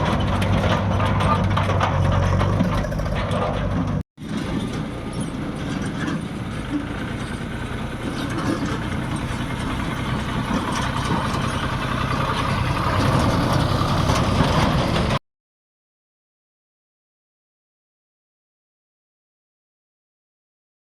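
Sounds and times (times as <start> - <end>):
diesel machinery engine running: 0.0 - 15.2.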